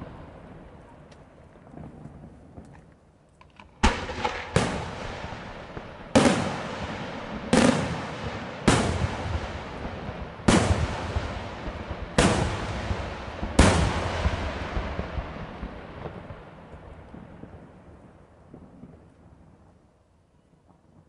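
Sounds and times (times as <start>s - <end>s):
rumble of fireworks: 0.0s - 21.0s
firework shells bursting: 2.6s - 9.9s.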